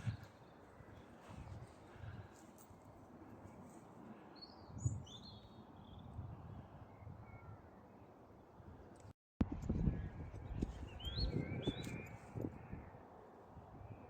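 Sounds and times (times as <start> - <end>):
bird chirps: 10.5 - 12.8.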